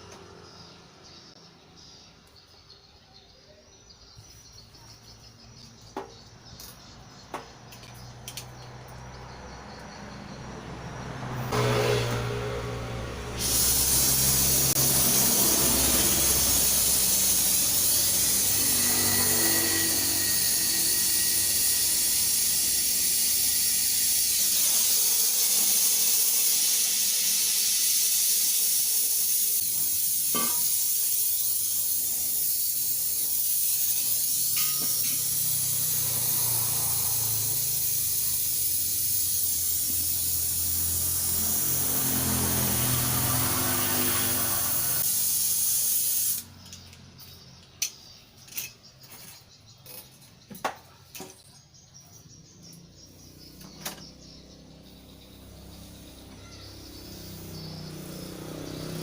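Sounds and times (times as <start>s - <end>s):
pressurised gas hissing out: 13.3s - 46.5s.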